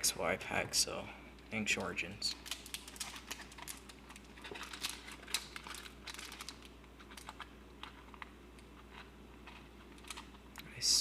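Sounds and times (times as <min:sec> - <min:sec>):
foil wrapper crinkling: 0:01.7 - 0:08.3.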